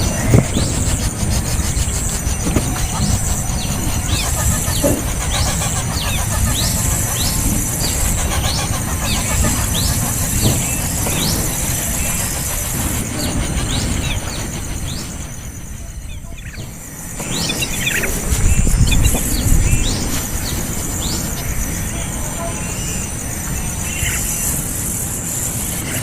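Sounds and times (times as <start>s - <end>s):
steady high hiss: 0.0s - 26.0s
bird chick begging chirps: 0.1s - 20.2s.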